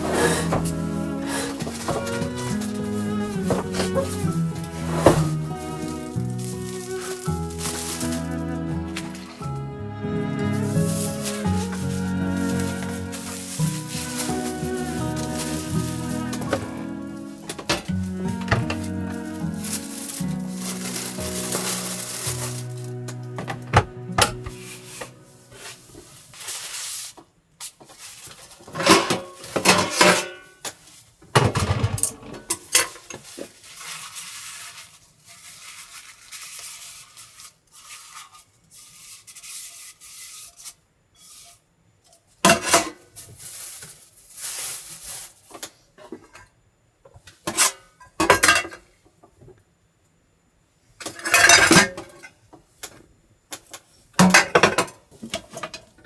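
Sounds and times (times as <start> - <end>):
tableware clinking and scraping: 0.0 - 9.6, 10.6 - 26.0, 28.8 - 30.5, 51.1 - 52.2.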